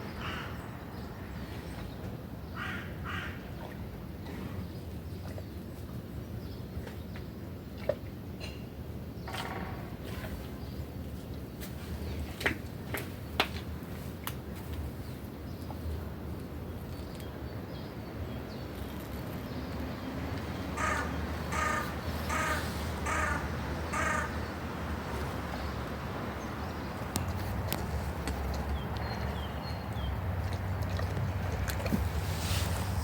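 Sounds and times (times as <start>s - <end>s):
crow cawing: 2.6s - 3.3s, 20.8s - 24.4s.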